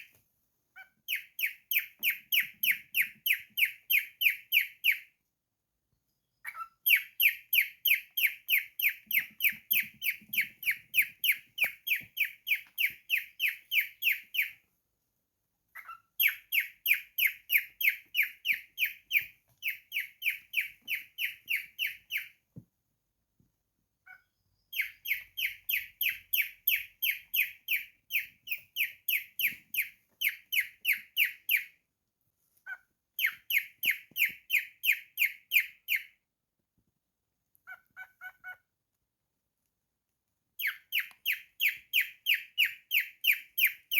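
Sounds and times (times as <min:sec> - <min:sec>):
cockatiel chirping: 0:00.8 - 0:05.2, 0:06.4 - 0:14.7, 0:15.7 - 0:22.4, 0:24.0 - 0:31.8, 0:32.6 - 0:36.2, 0:37.6 - 0:38.6, 0:40.6 - 0:43.9.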